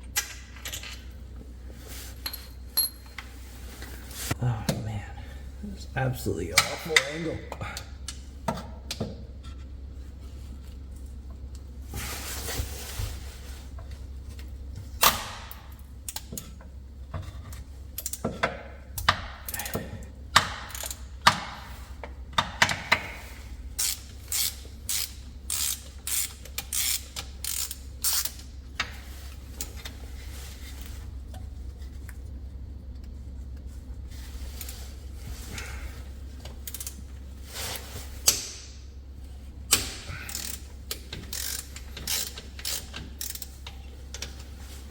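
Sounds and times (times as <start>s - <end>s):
ratchet wrench clicking: 20.7s - 21.0s, 23.8s - 28.5s, 36.6s - 37.0s, 40.3s - 43.5s.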